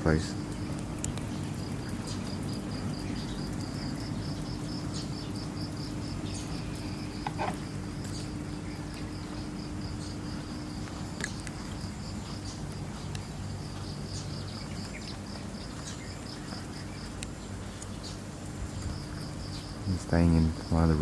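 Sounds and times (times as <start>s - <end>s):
insect chirping: 0.0s - 21.0s.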